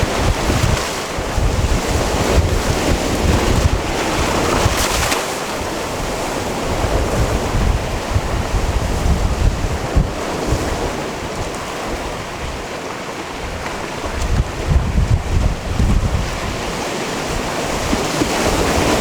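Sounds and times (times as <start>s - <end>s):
sea waves washing onto rocks: 0.0s - 19.0s
wind buffeting microphone: 0.0s - 19.0s.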